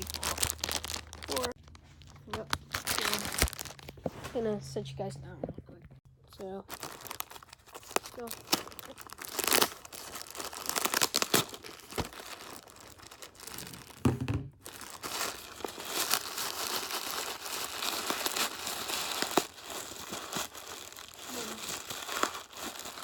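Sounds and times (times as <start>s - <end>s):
tape and wrapping tearing: 0.0s - 4.0s, 6.7s - 14.0s, 14.7s - 23.0s
knocks and thud: 14.0s - 14.6s.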